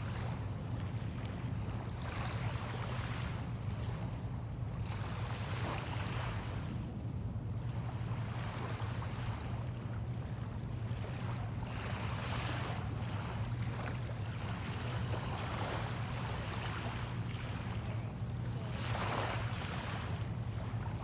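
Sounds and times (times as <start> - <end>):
steady low hum: 0.0 - 21.0
small waves washing on shore: 7.6 - 21.0.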